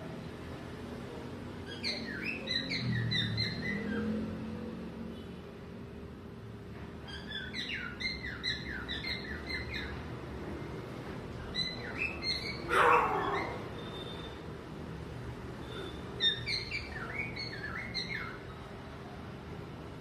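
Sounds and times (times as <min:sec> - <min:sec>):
bird screech: 0:12.5 - 0:14.3.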